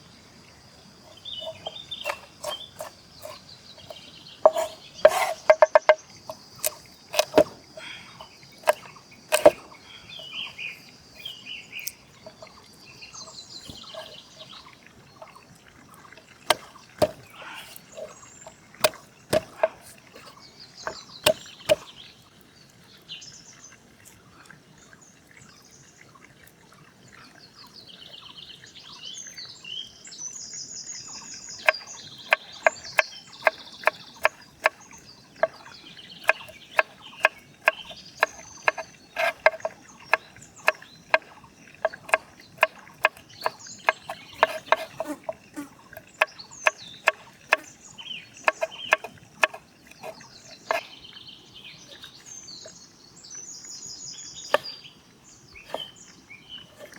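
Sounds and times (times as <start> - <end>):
birds singing: 0.0 - 23.8, 27.0 - 56.9
knife chopping on wooden board: 1.4 - 7.8, 8.6 - 9.7, 13.7 - 14.2, 16.5 - 18.1, 18.8 - 20.3, 20.9 - 21.8, 31.6 - 34.8, 35.4 - 47.7, 48.4 - 50.9, 55.7 - 55.9.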